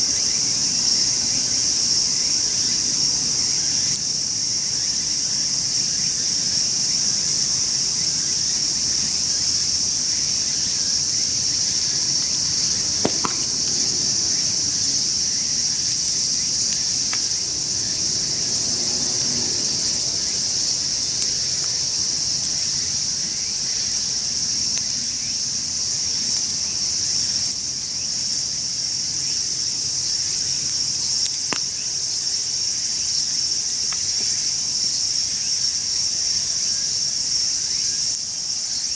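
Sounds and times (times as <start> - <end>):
insects trilling: 0.0 - 38.9
campfire pops: 10.7 - 17.5, 30.6 - 32.0.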